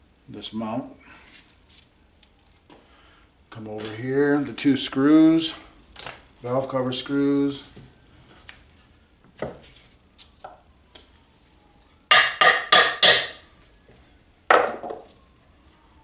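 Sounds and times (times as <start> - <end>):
sharp ringing metal knocks: 12.1 - 13.4.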